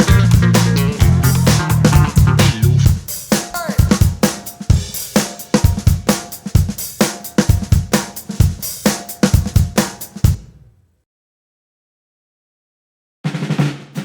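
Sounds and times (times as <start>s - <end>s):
bass line: 0.0s - 3.0s
drum kit groove: 0.0s - 10.8s, 13.3s - 14.0s.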